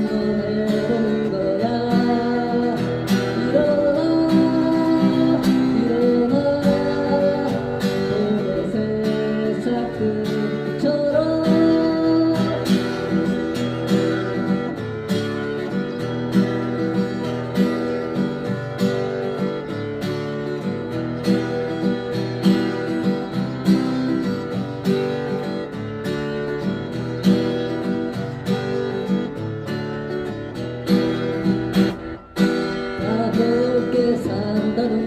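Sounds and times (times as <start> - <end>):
acoustic guitar strumming: 0.0 - 35.0.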